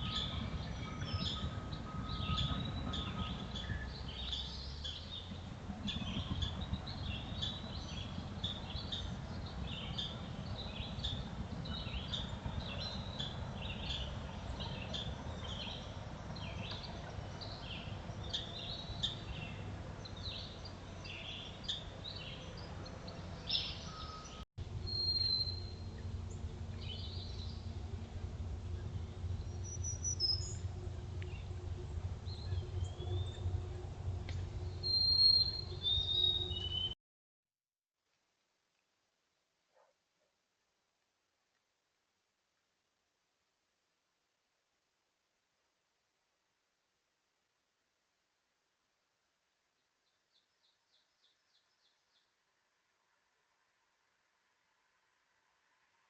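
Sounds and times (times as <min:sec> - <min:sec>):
whistled bird calls: 0:00.0 - 0:05.0, 0:23.5 - 0:26.0, 0:29.4 - 0:30.6, 0:34.7 - 0:37.0
low rumble: 0:24.6 - 0:36.6.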